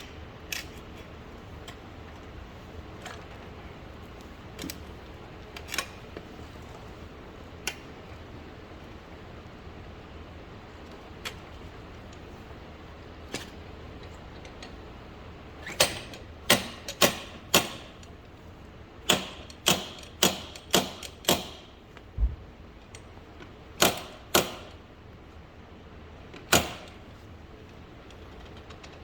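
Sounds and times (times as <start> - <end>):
dull low thump: 22.2 - 22.6.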